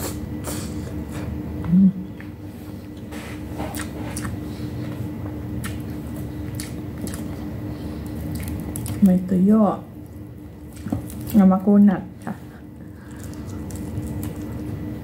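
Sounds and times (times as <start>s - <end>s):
steady low hum: 0.0s - 15.0s
wet chewing: 2.8s - 9.2s, 9.9s - 11.5s, 12.2s - 15.0s.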